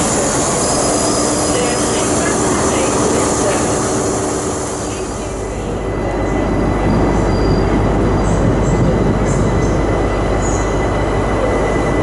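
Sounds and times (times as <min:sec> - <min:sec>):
high wheel squeals: 0:00.0 - 0:06.4
train rumbling on tracks: 0:00.0 - 0:12.0.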